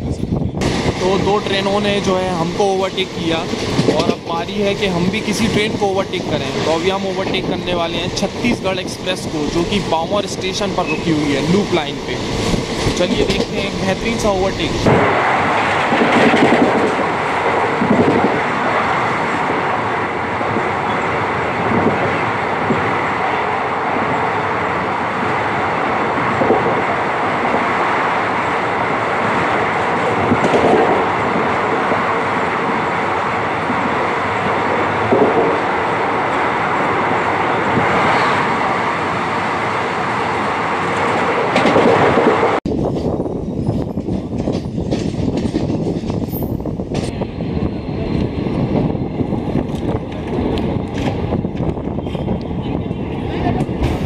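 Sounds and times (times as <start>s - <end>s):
rush of train wheels and wind: 0.0s - 54.0s
clickety-clack of wheels: 12.3s - 13.7s, 14.8s - 18.4s, 30.0s - 31.4s, 40.9s - 47.2s, 49.4s - 54.0s.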